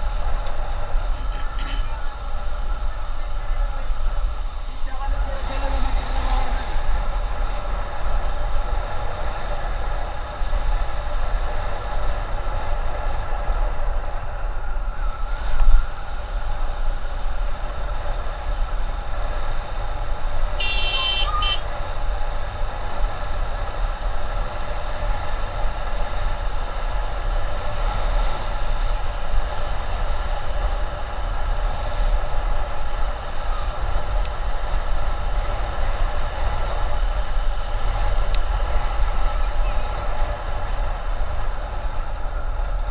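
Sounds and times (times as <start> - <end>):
wind rumble on microphone: 0.0 - 20.6, 21.3 - 42.9
high-pitched horn: 20.6 - 21.6.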